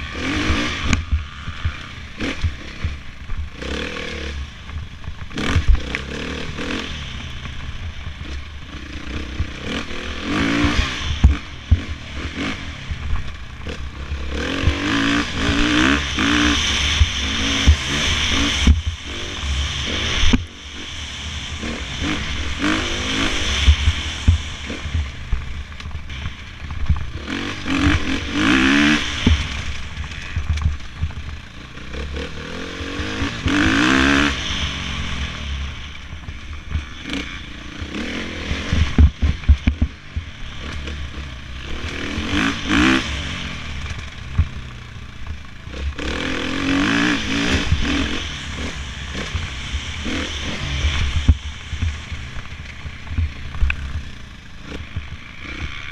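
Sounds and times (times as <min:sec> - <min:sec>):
dirt bike engines revving: 0:00.0 - 0:55.9.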